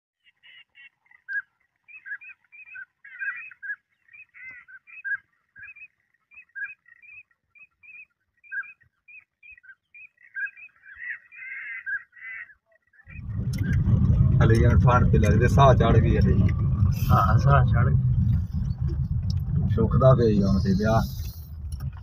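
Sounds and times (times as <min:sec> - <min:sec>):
birds chirping: 0:00.2 - 0:22.0.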